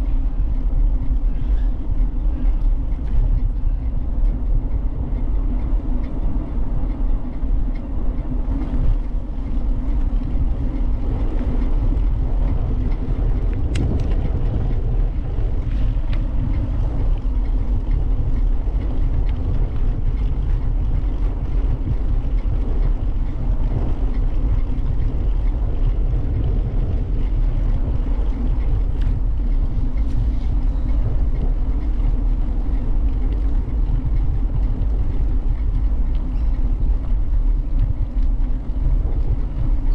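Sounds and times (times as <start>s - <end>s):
bicycle rolling noise: 0.0s - 39.9s
wind buffeting: 0.0s - 39.9s.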